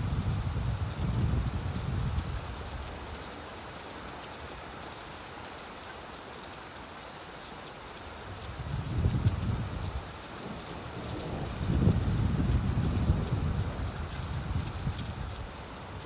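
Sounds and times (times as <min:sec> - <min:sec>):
low rumble of thunder: 0:00.0 - 0:02.4, 0:08.6 - 0:15.6
steady rainfall: 0:00.0 - 0:16.0.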